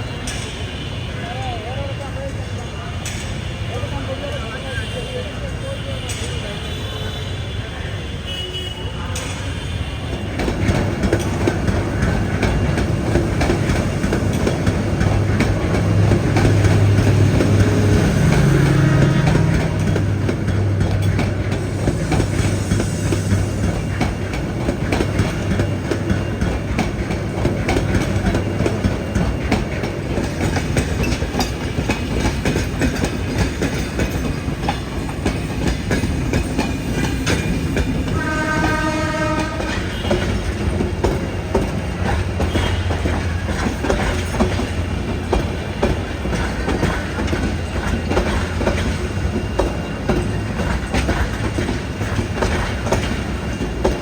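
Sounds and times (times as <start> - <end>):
train horn: 4.6 - 11.2, 15.2 - 24.2, 38.0 - 40.6, 42.4 - 43.3
train wheels clattering over joints: 9.2 - 54.0.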